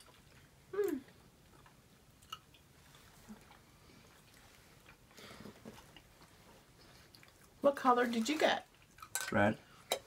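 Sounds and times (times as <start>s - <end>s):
faint chewing: 0.0s - 7.6s.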